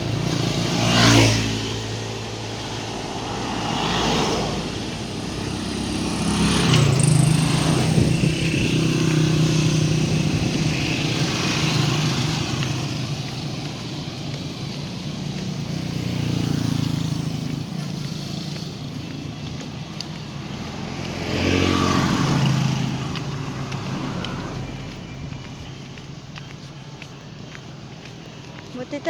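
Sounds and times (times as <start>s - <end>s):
engine humming steadily: 0.0s - 29.0s
vehicles passing close by: 0.0s - 29.0s.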